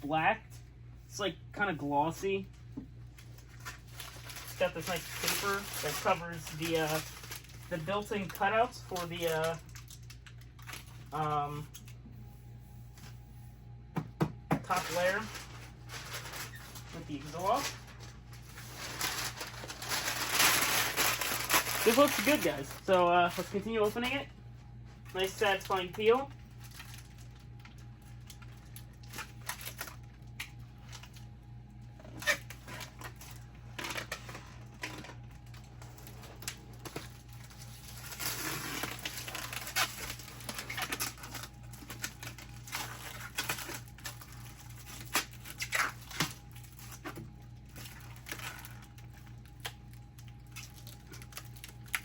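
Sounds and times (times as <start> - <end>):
plastic film crackling: 2.4 - 11.9, 14.6 - 52.0
plastic film tearing hiss: 3.6 - 10.7, 18.5 - 22.8.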